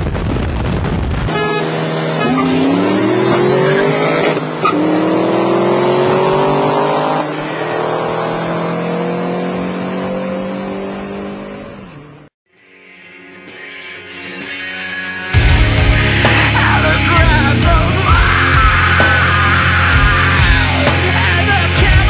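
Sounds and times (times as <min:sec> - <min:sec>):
car engine accelerating hard: 0:01.3 - 0:12.3, 0:15.4 - 0:22.0
music: 0:12.5 - 0:22.0.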